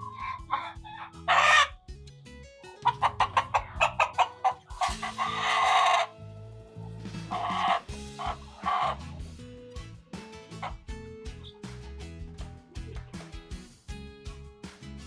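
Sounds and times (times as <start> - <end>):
chickens clucking: 0.0 - 1.8, 2.7 - 9.3, 10.4 - 13.3
quiet background music: 0.0 - 15.0
rooster crowing: 1.3 - 1.7, 2.9 - 6.1.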